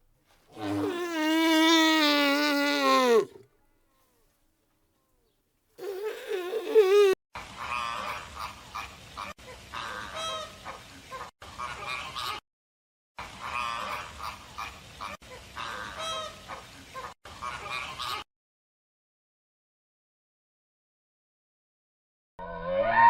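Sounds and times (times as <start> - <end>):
wavering pitched cry: 0.6 - 3.4, 5.8 - 7.2.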